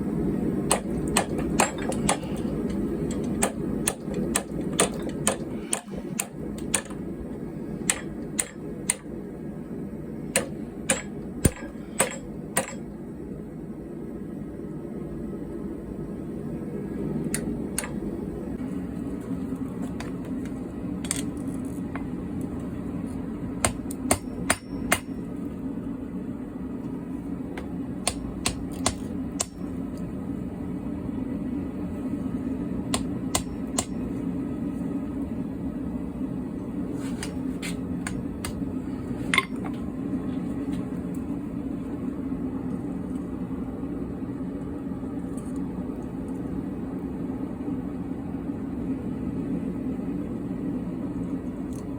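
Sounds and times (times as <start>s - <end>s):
hammer striking steel on anvil: 0.7s - 2.3s, 3.1s - 7.0s, 7.8s - 9.1s, 10.3s - 12.8s, 23.6s - 25.2s, 28.0s - 29.7s, 33.0s - 34.1s.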